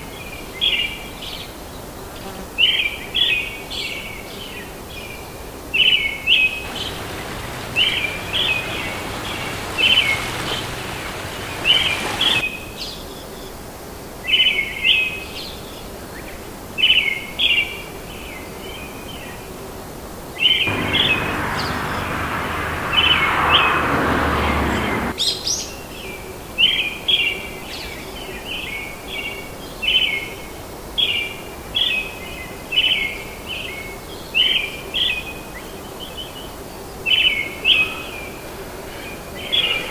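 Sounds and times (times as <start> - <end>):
rushing noise: 6.7 - 12.4, 20.7 - 25.2, 37.3 - 39.9
bird chirping: 37.2 - 39.9.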